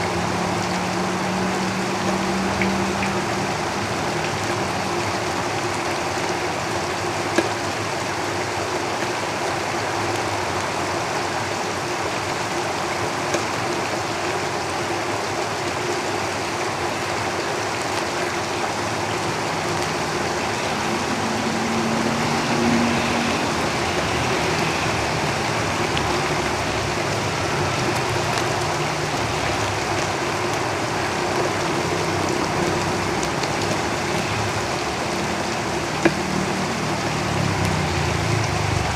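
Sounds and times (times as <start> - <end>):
vehicle passing by: 0.0 - 5.4, 19.2 - 38.9
rain on a tin roof: 0.0 - 38.9
road traffic rumbling: 0.0 - 38.9.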